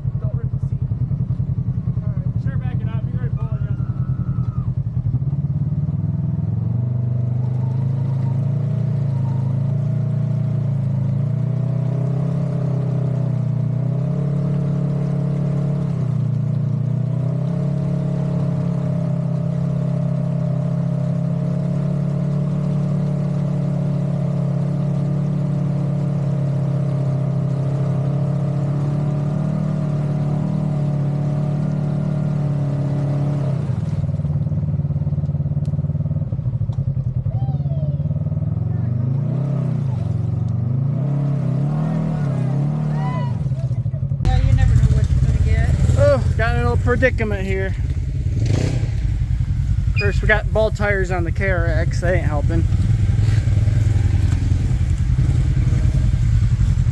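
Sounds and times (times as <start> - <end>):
engine revving high: 39.0 - 43.2, 44.3 - 56.9.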